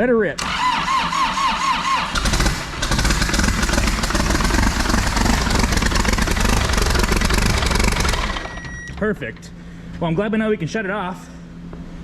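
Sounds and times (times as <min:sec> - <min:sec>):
starter motor cranking: 0:00.4 - 0:08.9
diesel engine running: 0:01.6 - 0:09.8.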